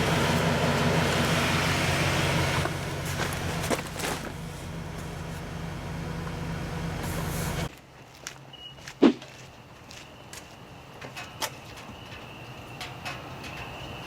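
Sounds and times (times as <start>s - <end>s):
vehicle engine running: 0.0s - 7.7s.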